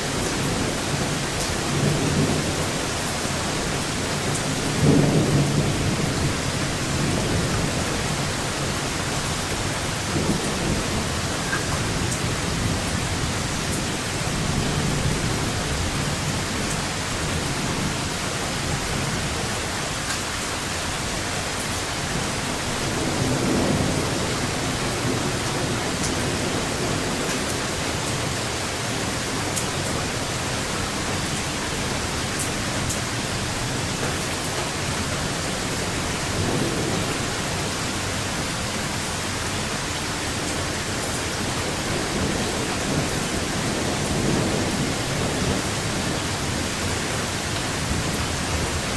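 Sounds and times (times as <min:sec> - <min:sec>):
steady rain falling: 0:00.0 - 0:48.9
thunder rumbling: 0:40.3 - 0:48.9.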